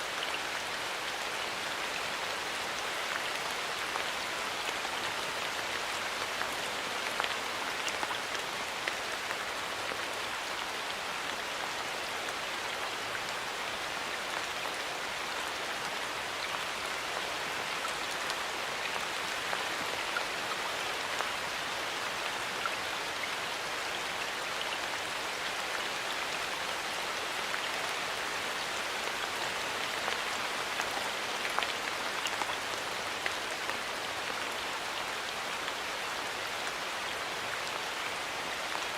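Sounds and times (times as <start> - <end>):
rain on leaves: 0.0 - 38.9.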